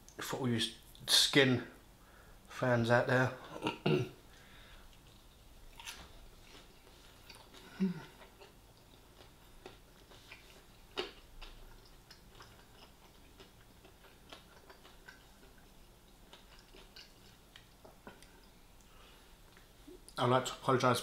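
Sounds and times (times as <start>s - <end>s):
chewing fried chicken: 4.8s - 20.2s.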